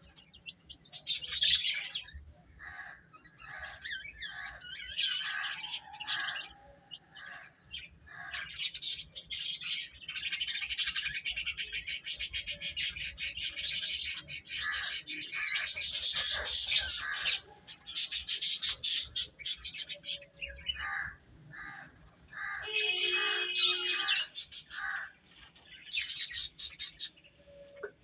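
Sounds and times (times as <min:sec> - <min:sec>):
baby chicks peeping: 0:07.8 - 0:27.2.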